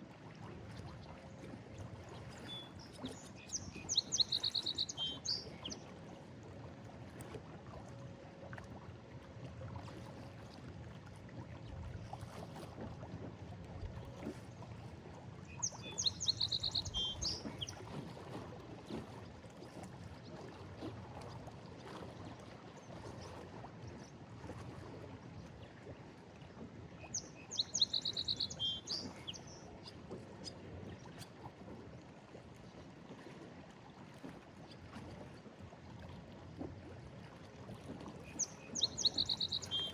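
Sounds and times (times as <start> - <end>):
waves lapping against stone wall: 0.0 - 39.9
songbird singing: 3.3 - 5.8, 15.6 - 17.7, 27.1 - 29.6, 38.3 - 39.9.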